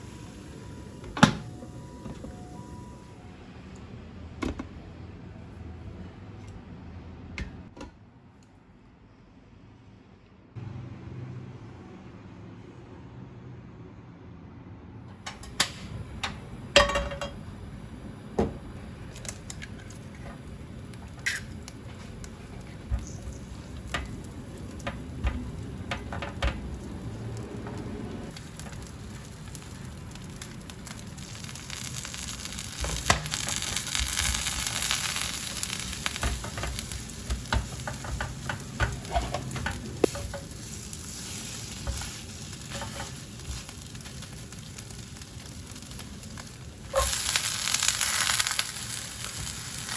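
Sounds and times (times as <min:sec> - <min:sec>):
garlic sizzling in oil: 0:18.9 - 0:49.9
cooking utensil clicks and scrapes: 0:21.1 - 0:26.8, 0:35.8 - 0:44.3.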